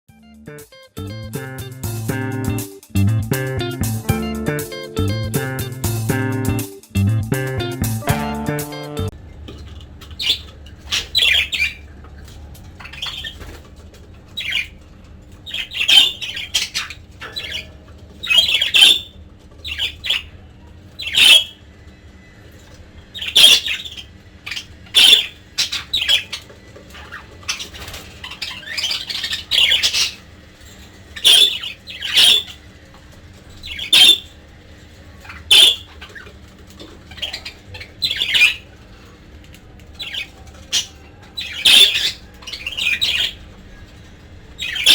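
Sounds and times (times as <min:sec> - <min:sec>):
budgerigars squawking and chirping: 0:10.0 - 0:21.6, 0:22.6 - 0:32.8, 0:33.4 - 0:39.1, 0:39.9 - 0:44.9.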